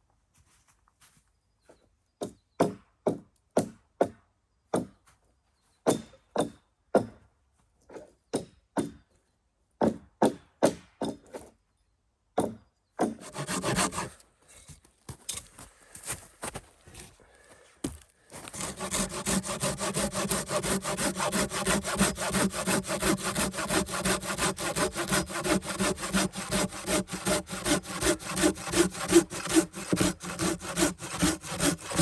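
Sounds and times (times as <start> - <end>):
hand saw cutting wood: 13.0 - 14.2, 18.3 - 32.0.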